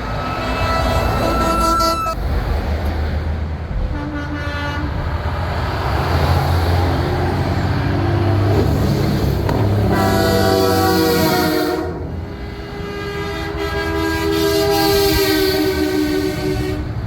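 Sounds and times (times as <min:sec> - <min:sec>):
truck air horn blasts: 0:00.0 - 0:02.2, 0:03.9 - 0:05.2, 0:09.8 - 0:17.0.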